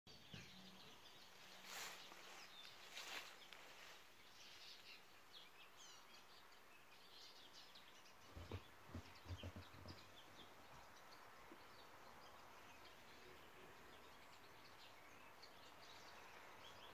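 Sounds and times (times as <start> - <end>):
birds chirping: 0.1 - 16.9.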